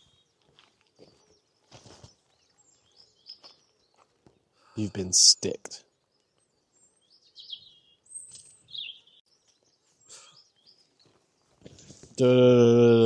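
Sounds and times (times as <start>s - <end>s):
faint bird chirps: 0.0s - 11.7s
whistled bird calls: 6.9s - 9.2s.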